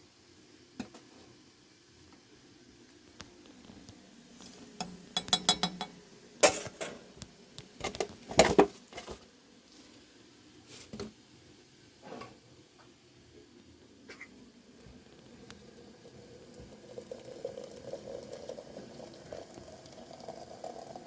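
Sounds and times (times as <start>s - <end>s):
dishes and utensils clinking: 4.4s - 7.0s.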